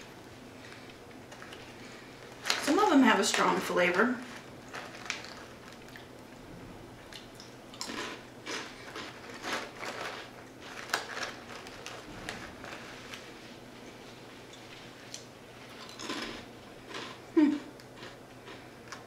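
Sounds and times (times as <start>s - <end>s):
crunching crisp chips: 4.2s - 6.1s, 7.2s - 13.4s, 15.0s - 19.0s.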